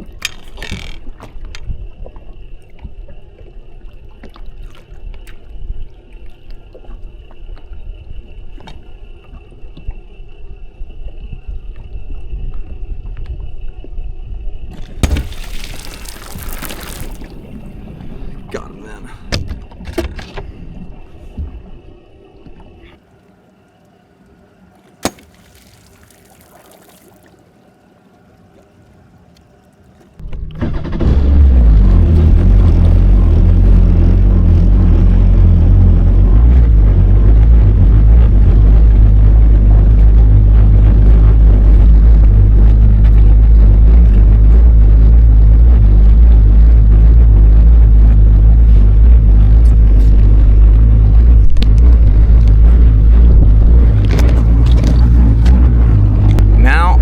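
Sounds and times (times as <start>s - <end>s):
boat engine running: 30.2s - 57.0s.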